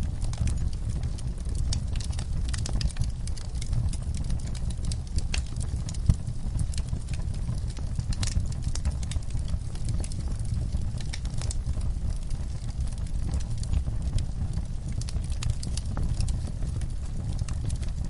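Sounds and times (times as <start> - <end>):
fire crackling and popping: 0.0 - 18.0
fire rumbling: 0.0 - 18.0.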